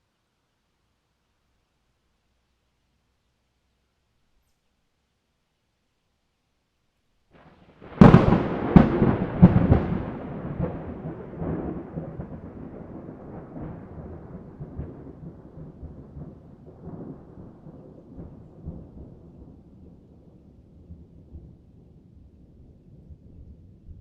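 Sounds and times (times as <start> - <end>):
thunder cracks: 7.4 - 19.7
rolling thunder rumble: 7.4 - 24.0.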